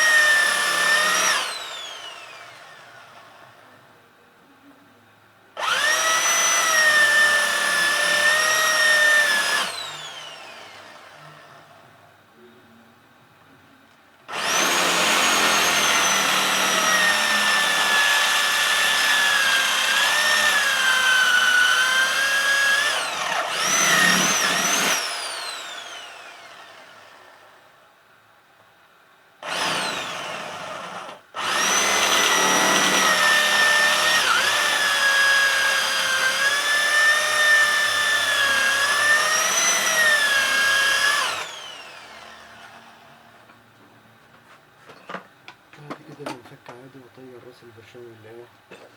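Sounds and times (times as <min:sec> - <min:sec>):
electric drill drilling into rivet: 0:00.0 - 0:03.4, 0:05.6 - 0:11.7, 0:14.3 - 0:27.6, 0:29.4 - 0:43.2.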